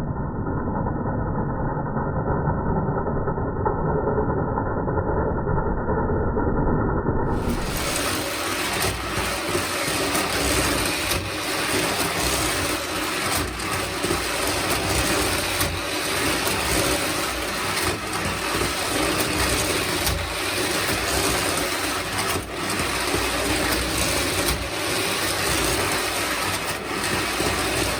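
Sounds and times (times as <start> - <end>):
toy train motor whirring: 7.3 - 27.9.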